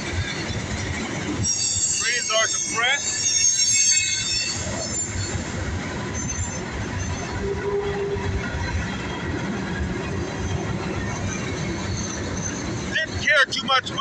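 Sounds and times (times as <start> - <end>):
train wheels rumbling on rails: 0.0 - 14.0
high-pitched wheel squeal: 1.4 - 8.3.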